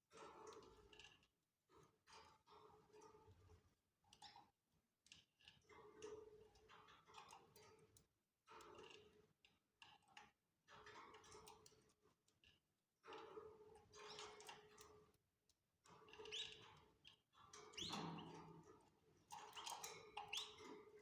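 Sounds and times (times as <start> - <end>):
canaries clicking and rustling: 19.5 - 20.6.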